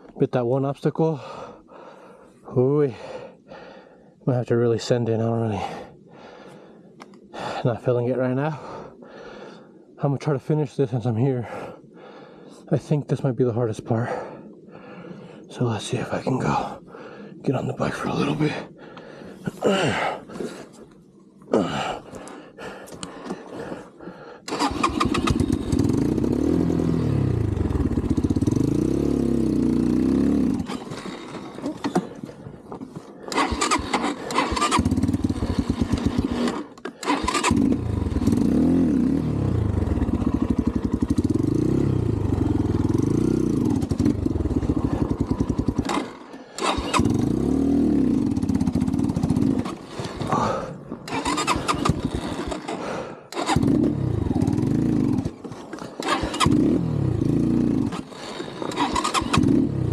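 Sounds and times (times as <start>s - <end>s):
dirt bike engine revving: 24.5s - 32.2s, 33.3s - 59.9s.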